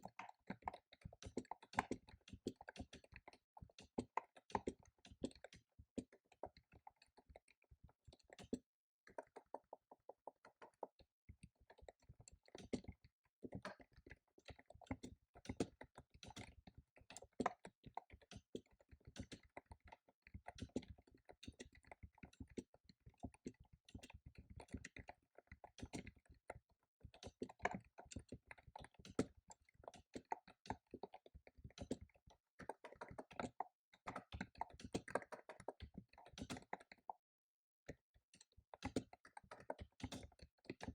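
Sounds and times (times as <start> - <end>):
fast keyboard typing: 31.8 - 37.1, 38.8 - 40.9.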